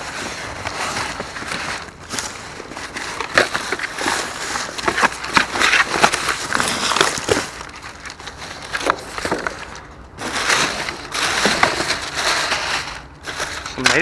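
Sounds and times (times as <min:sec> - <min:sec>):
trash bags rustling and crunching: 0:00.0 - 0:14.0.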